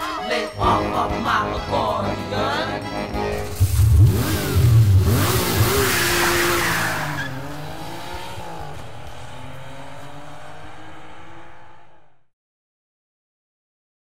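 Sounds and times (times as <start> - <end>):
noisy crash with heavy bass: 3.3 - 7.1.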